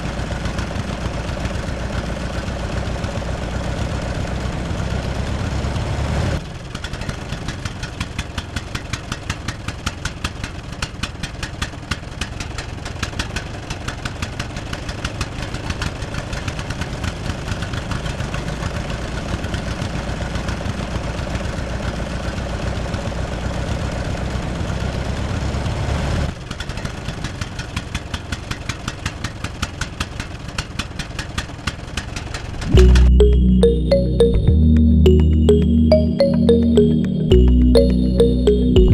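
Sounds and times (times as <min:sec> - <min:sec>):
music: 0:32.7 - 0:38.9.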